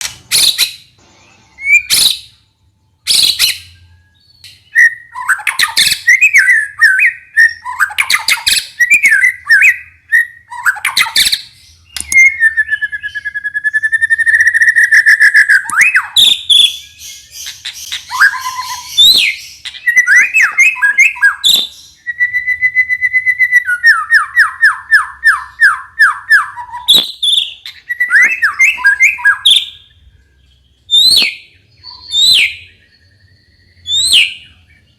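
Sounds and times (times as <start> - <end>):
bird singing: 0.0 - 34.9
sharp bird clicks: 10.8 - 12.5, 14.8 - 16.1.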